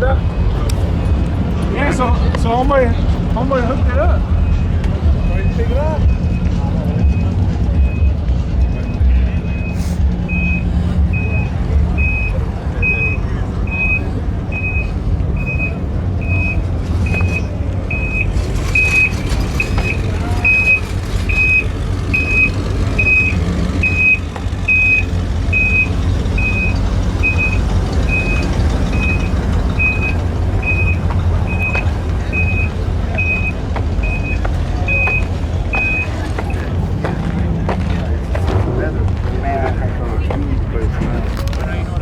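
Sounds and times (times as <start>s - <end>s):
vehicle backup alarm beeping: 0.1s - 38.6s.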